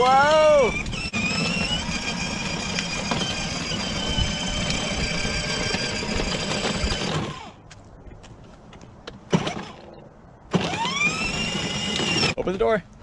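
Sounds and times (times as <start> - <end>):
toy car motor whine: 0.1 - 7.6, 10.5 - 12.4.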